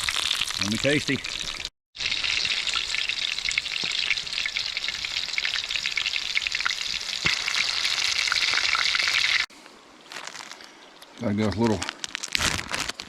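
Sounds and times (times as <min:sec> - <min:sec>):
chicken frying in hot oil: 0:00.0 - 0:09.5.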